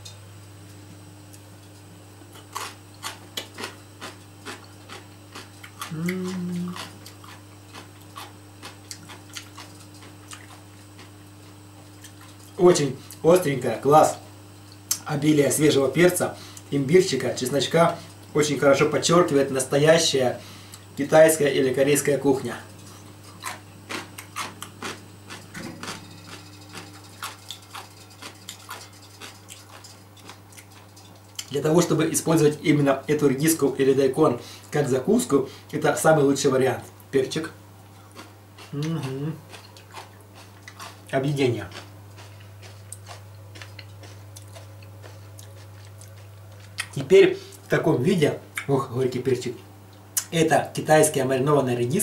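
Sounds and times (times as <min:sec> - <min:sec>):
steady low hum: 0:00.0 - 0:52.0
crisp chewing crunches: 0:02.3 - 0:13.2, 0:22.8 - 0:31.6, 0:37.9 - 0:47.7
person humming mmm: 0:05.8 - 0:07.0, 0:38.7 - 0:39.5.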